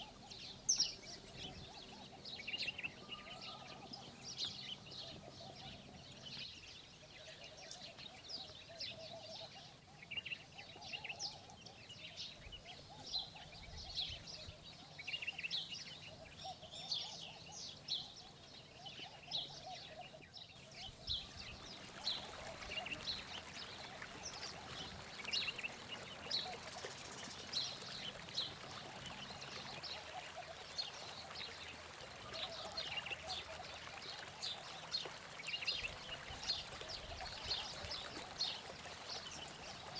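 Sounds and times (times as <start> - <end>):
small birds chirping: 0.0 - 39.9
running water rushing: 20.6 - 39.9.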